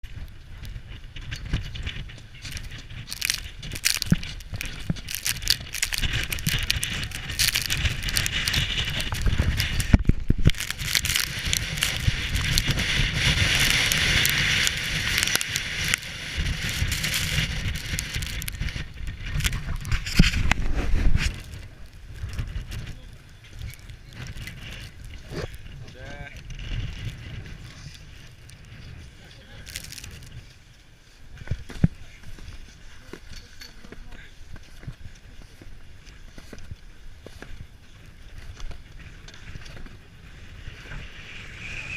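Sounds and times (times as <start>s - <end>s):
wind buffeting microphone: 0.0s - 33.3s
bike rattling and clicking: 0.0s - 41.7s.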